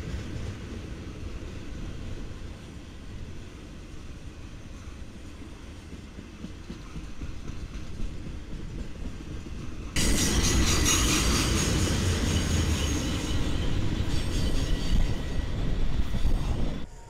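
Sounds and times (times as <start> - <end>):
train wheels rumbling and clattering: 0.0 - 16.9
metallic wheel squeal: 10.0 - 17.0.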